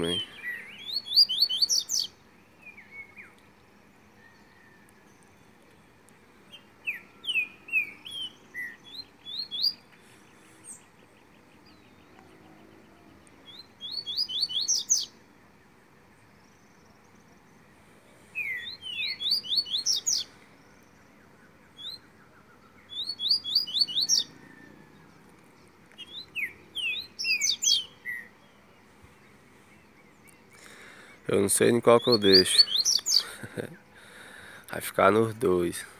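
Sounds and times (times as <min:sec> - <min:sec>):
bird singing sharp high notes: 0:31.2 - 0:33.3.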